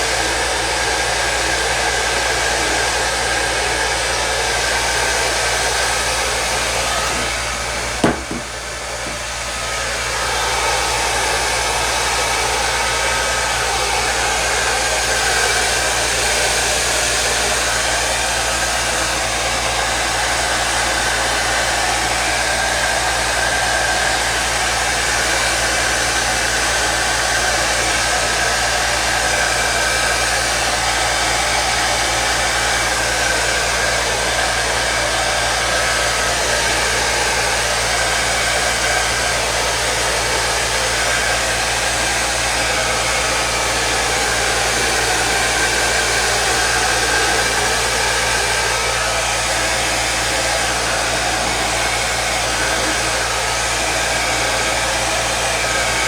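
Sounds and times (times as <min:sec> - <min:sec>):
heat gun blowing: 0:06.1 - 0:10.1, 0:34.8 - 0:56.0
sharp knock: 0:07.0 - 0:07.4, 0:08.0 - 0:09.2.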